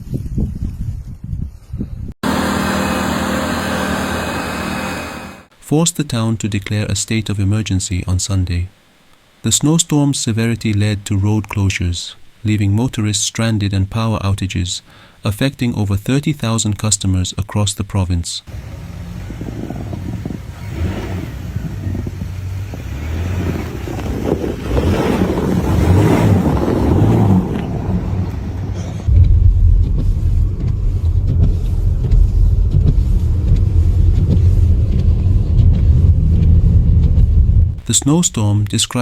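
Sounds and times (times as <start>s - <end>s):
loud steady low rumble: 2.2s - 5.5s, 18.5s - 25.0s, 25.6s - 38.3s
motor vehicle running: 2.2s - 5.5s, 18.5s - 37.8s.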